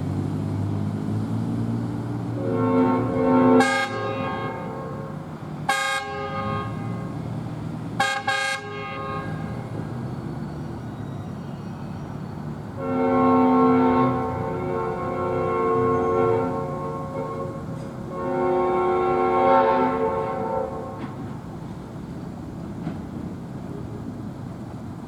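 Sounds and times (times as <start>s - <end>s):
locomotive air horn blasts: 2.3s - 7.3s, 8.0s - 9.9s, 12.8s - 21.3s.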